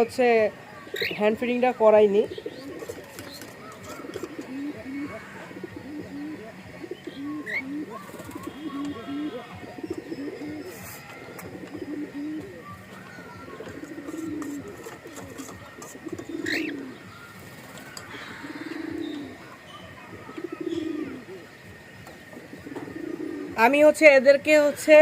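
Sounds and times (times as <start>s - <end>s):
higher rising bird chirp: 2.2s - 14.4s
short low raspy bird calls: 3.6s - 12.6s.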